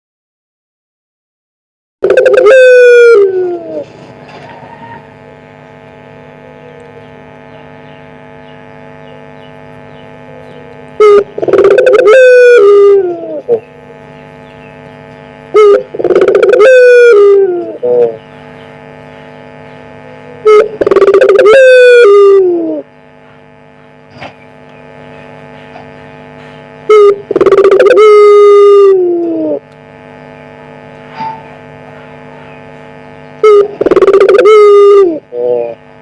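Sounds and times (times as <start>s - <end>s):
dove cooing: 2.0s - 5.1s, 10.0s - 14.2s, 15.5s - 18.8s, 19.9s - 22.9s, 26.9s - 29.7s, 33.4s - 35.9s
electrical hum: 2.0s - 36.0s.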